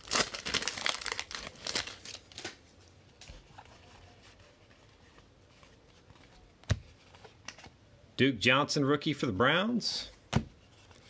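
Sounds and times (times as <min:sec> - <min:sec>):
plastic wrapper crinkling and tearing: 0:00.0 - 0:02.6.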